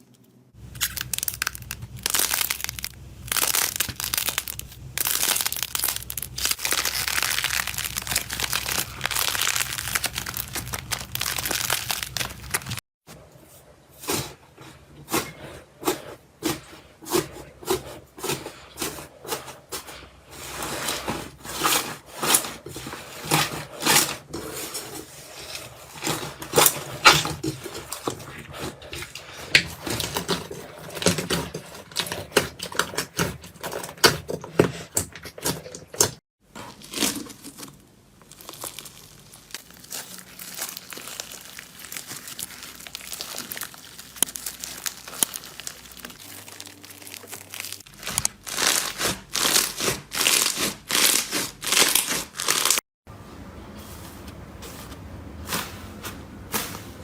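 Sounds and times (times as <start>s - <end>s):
slime clicking and crackling: 0.6s - 12.8s, 36.8s - 52.8s.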